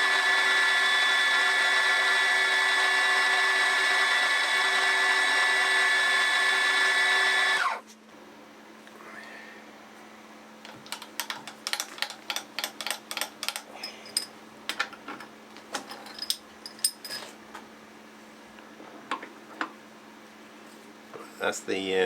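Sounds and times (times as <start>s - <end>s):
metallic clicks and clinks: 10.8s - 14.8s, 15.9s - 17.3s.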